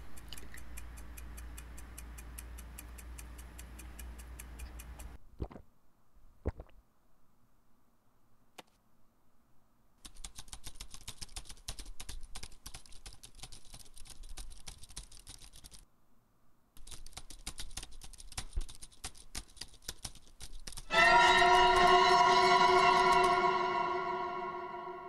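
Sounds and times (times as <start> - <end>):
fast keyboard typing: 10.0 - 15.8, 16.8 - 20.9.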